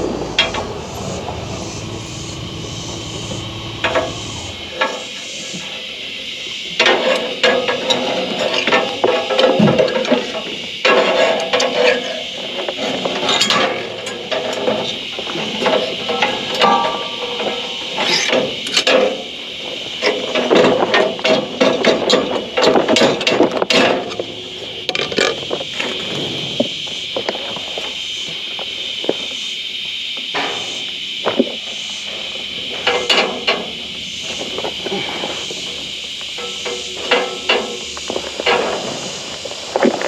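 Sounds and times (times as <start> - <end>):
steady high hiss: 0.0 - 5.6.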